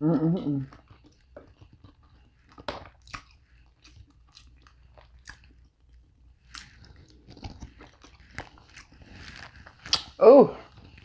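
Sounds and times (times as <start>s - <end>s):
person chewing food: 0.6s - 11.0s
wet mouth clicks and smacks: 0.8s - 5.6s, 9.7s - 10.2s.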